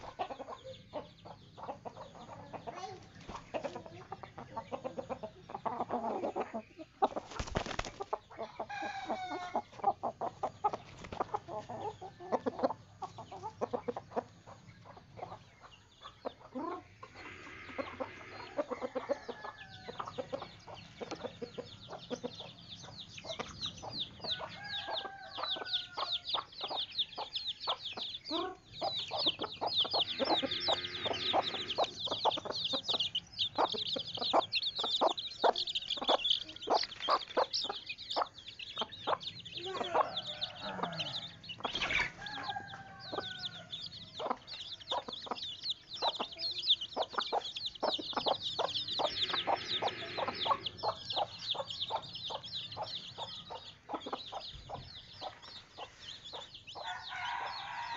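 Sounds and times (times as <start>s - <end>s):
rapid high-pitched peeping: 0.0s - 57.8s
chickens clucking: 0.0s - 57.9s.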